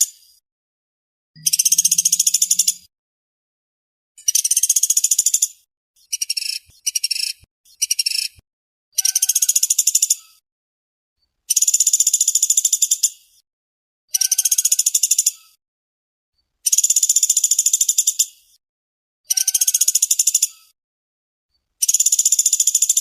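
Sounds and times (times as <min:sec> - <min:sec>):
woodpecker rattling trills: 0:01.4 - 0:02.9, 0:19.3 - 0:20.4.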